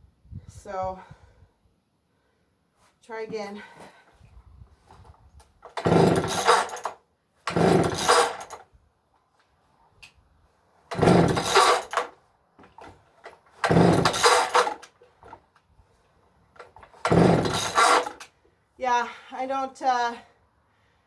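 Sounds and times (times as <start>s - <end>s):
chainsaw recoil starter pulls: 5.6s - 8.7s, 10.9s - 15.4s, 16.6s - 18.3s.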